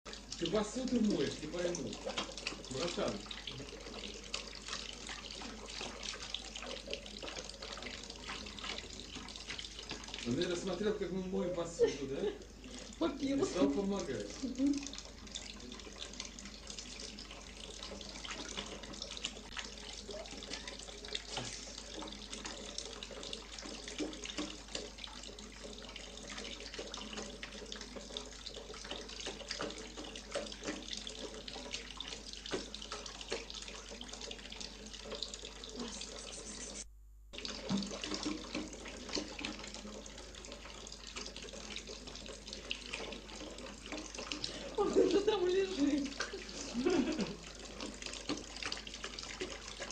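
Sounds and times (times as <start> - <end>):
tap running into a sink: 20.5 - 35.3, 37.4 - 45.1.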